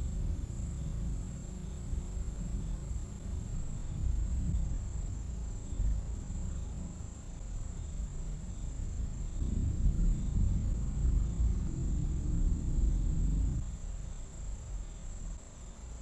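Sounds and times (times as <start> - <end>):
high insect trill: 0.0 - 16.0
thunder rumbling: 7.9 - 13.6.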